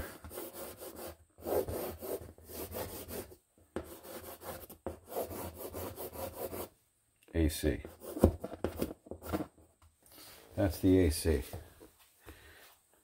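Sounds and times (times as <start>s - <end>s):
pencil scraping on wood: 0.2s - 6.7s.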